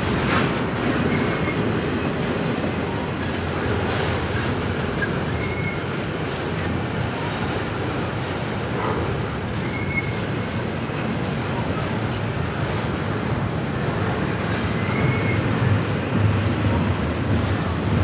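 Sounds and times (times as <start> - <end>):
steel wheels rumbling on rail: 0.0 - 18.0
faint wheel squeals: 9.6 - 10.2, 14.7 - 15.5.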